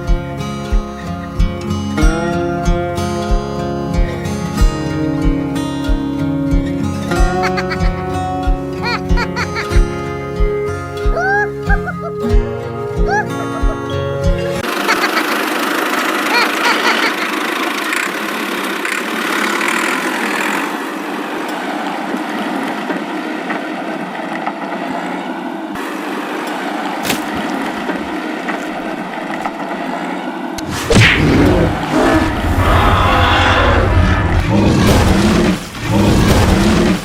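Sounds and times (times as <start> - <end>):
loud burst of noise: 30.6 - 37.0.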